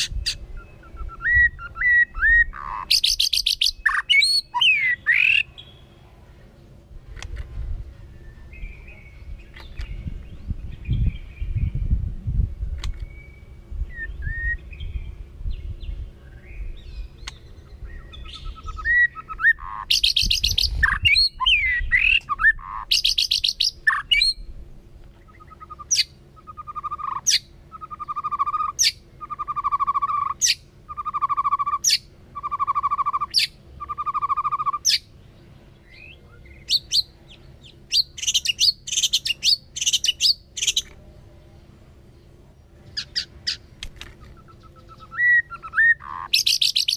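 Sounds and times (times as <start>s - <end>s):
songbird singing whistled phrases: 0.0s - 5.9s, 12.7s - 24.5s, 25.2s - 35.1s, 35.8s - 37.1s, 37.9s - 40.9s, 44.2s - 46.9s.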